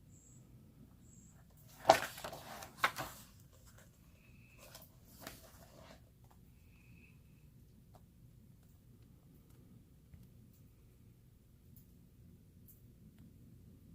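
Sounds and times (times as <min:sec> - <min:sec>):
paper rustling: 0:01.5 - 0:06.4
paper pages swishing: 0:01.6 - 0:03.9, 0:04.5 - 0:06.0.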